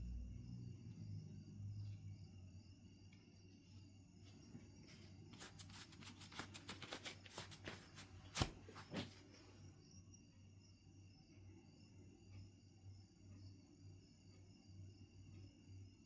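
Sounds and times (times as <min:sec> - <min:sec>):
flint knapping clicks and scrapes: 0:05.4 - 0:09.1.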